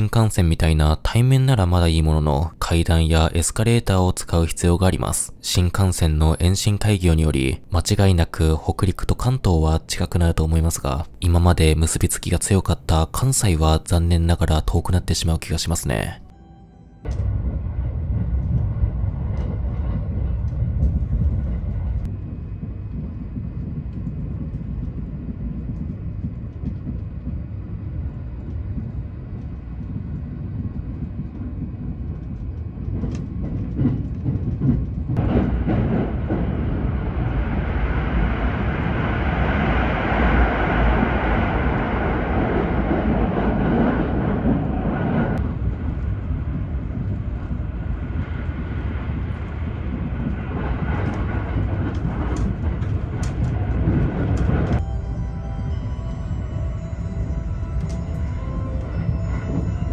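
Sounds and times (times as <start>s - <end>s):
train wheels rumbling on rail: 17.1s - 59.9s.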